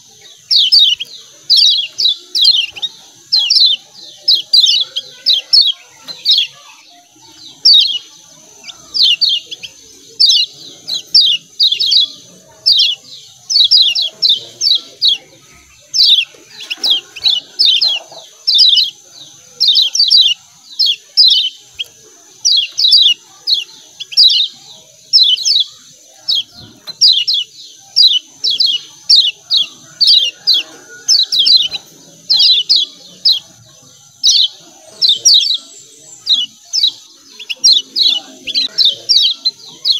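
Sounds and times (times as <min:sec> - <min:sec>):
bird chattering chirps: 0:00.0 - 0:39.9.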